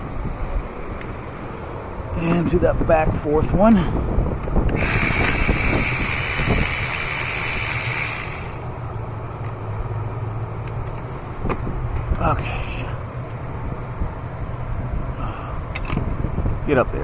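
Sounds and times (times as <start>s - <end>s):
electric ratchet whining: 4.7s - 8.8s.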